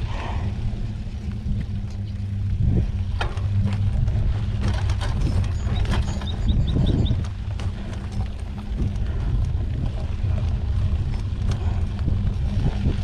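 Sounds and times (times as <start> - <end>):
bike tyres rumbling on dirt: 0.0 - 13.0
wind on microphone: 0.0 - 13.0
clicks and rattles from bumps: 3.1 - 13.0.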